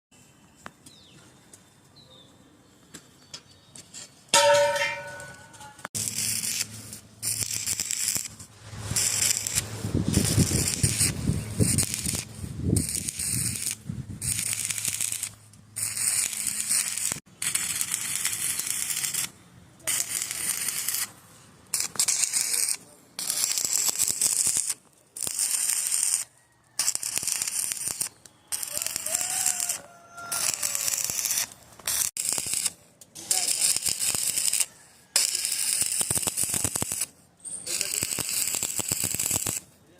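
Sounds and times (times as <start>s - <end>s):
arc welding crackling hiss: 6.0s - 39.7s.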